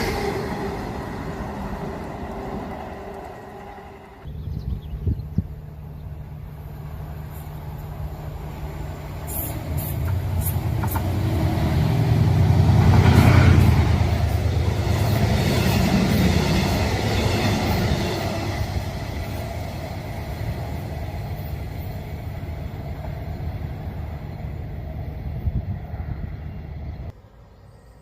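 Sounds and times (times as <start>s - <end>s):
train rumbling past: 0.0s - 27.4s
sharp clicks of train: 9.2s - 11.8s.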